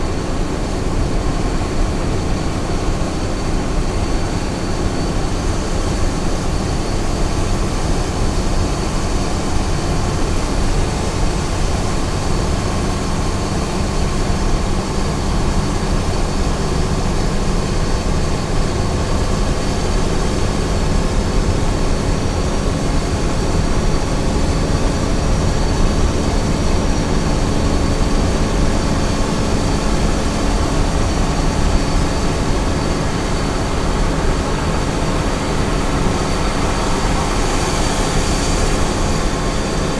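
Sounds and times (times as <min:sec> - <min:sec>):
truck engine running: 0:00.0 - 0:39.9
road and tyre noise: 0:15.7 - 0:39.9.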